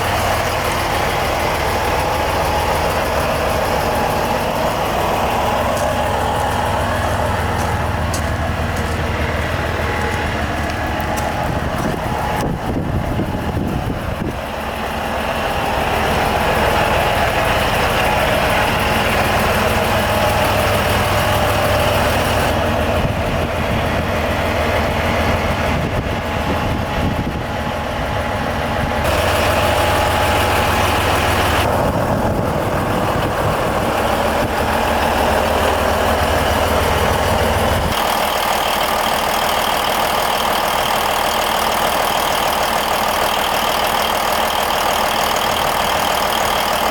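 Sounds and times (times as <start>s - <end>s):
diesel truck engine idling: 0.0s - 46.9s.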